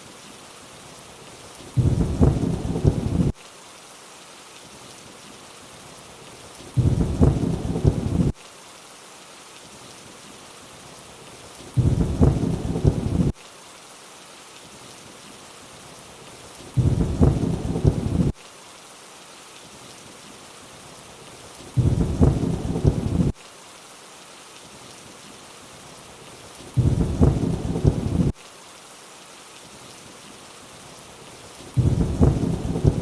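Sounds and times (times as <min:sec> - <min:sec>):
steady rainfall: 0:00.0 - 0:33.0
thunder rumble: 0:01.8 - 0:03.3, 0:06.8 - 0:08.3, 0:11.8 - 0:13.3, 0:16.8 - 0:18.3, 0:21.8 - 0:23.4, 0:26.8 - 0:28.3, 0:31.8 - 0:33.0.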